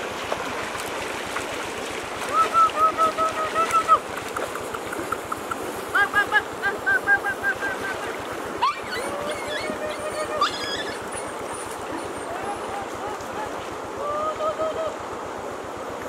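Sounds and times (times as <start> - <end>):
water splashing around wading legs: 0.0 - 14.0
birds calling: 4.8 - 13.7.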